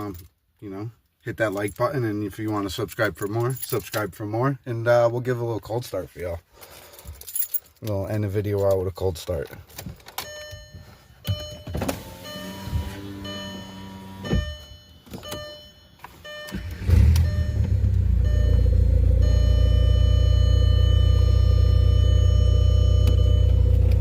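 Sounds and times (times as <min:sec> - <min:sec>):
diesel engine starting and idling: 0:16.3 - 0:24.0.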